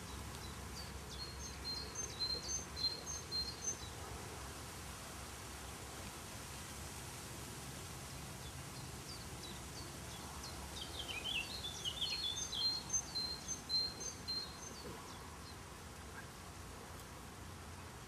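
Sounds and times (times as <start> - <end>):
small songbird singing: 0.0 - 4.0, 8.4 - 16.4
background noise: 0.0 - 18.0.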